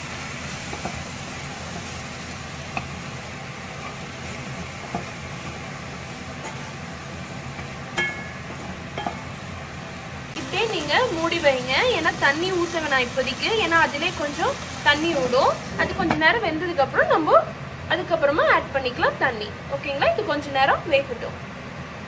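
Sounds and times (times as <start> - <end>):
food sizzling in oil: 0.0 - 17.2.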